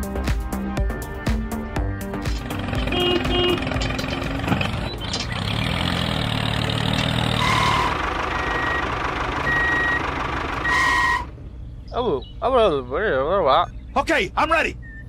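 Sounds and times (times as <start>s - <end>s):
vehicle engine running: 2.0s - 14.1s
reversing beeper: 7.2s - 11.3s.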